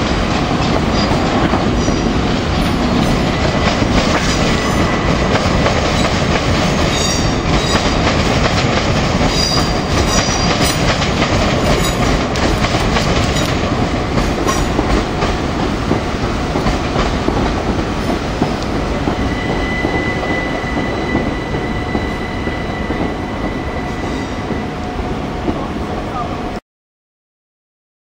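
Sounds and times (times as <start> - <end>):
train wheels clattering over rail joints: 0.0 - 22.2.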